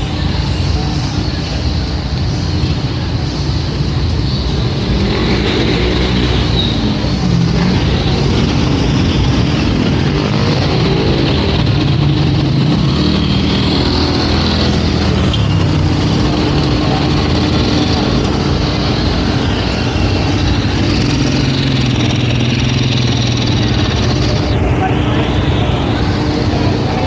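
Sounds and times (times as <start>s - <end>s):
vehicle engines running: 0.0s - 27.0s.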